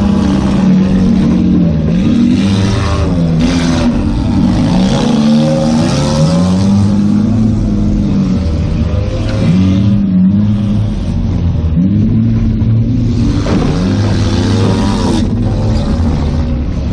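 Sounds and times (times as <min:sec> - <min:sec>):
car engine revving: 0:00.0 - 0:16.9
road and wind noise: 0:00.0 - 0:16.9.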